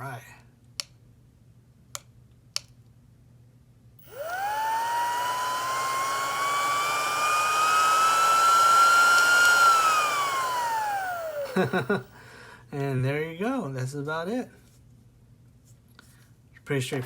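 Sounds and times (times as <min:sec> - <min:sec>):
air pump motor whine: 0:04.0 - 0:12.2.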